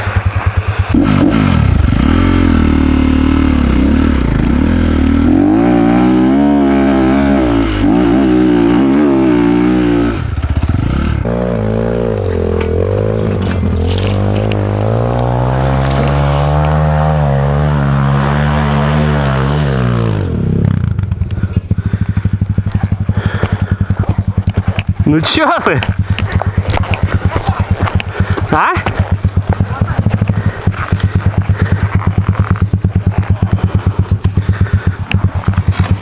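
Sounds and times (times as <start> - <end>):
dirt bike engine revving: 0.0 - 36.0.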